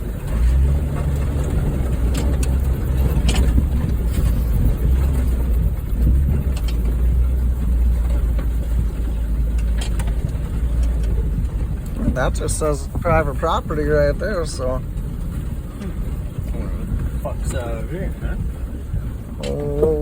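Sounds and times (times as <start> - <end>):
car engine drone: 0.0 - 20.0
knocks and rattles: 0.0 - 20.0
rumble over rough ground: 0.0 - 20.0.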